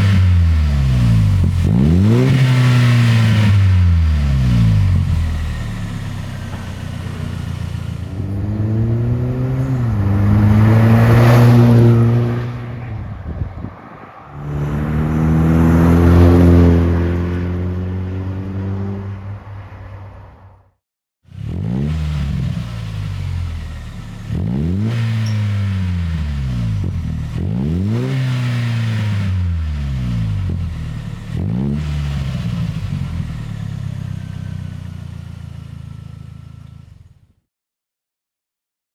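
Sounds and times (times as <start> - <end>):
engine quick blips: 0.0 - 12.9, 21.3 - 37.0
car engine revving: 0.0 - 13.1, 14.2 - 19.4, 21.3 - 37.2.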